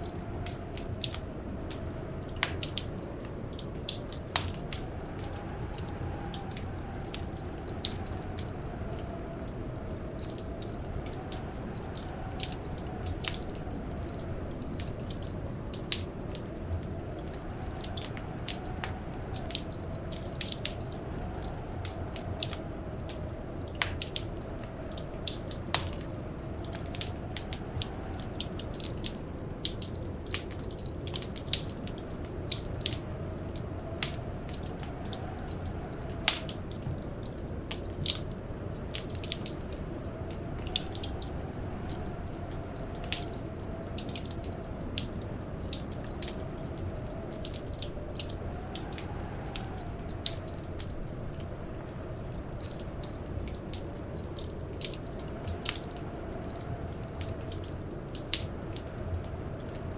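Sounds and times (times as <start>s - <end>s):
howling blizzard wind: 0.0s - 59.9s
wood fire crackling: 0.0s - 59.9s.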